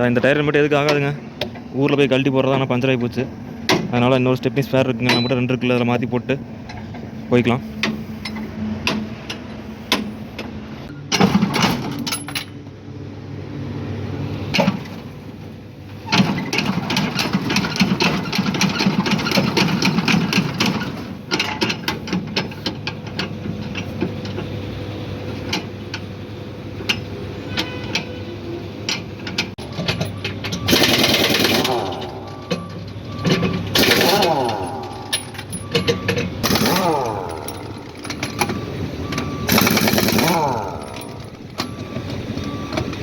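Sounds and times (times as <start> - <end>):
engine running: 4.4 - 43.0
metallic clicks and clanks: 16.1 - 24.5, 28.8 - 43.0
loud rattling: 30.6 - 32.3, 39.5 - 41.4.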